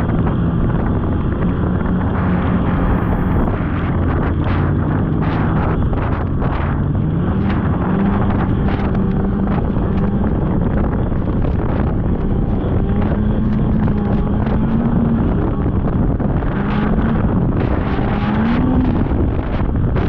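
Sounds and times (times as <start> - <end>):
snowmobile engine revving: 0.0 - 20.0
wind buffeting microphone: 0.0 - 20.0.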